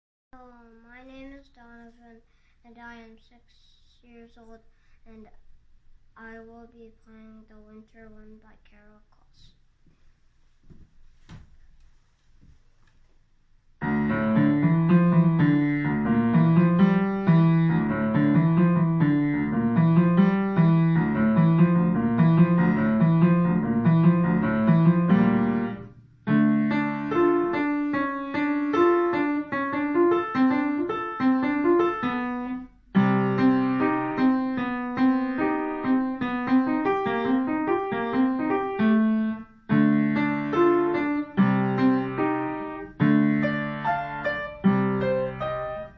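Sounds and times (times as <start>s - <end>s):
child playing piano: 13.8s - 45.9s.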